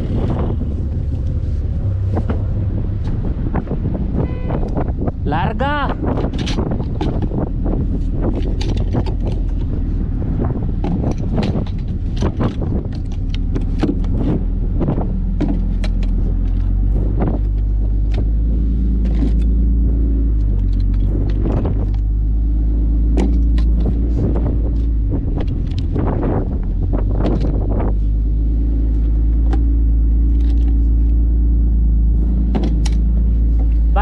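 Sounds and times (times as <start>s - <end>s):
vehicle engine driving: 0.0s - 34.0s
rattles and knocks: 6.0s - 28.1s, 32.2s - 34.0s.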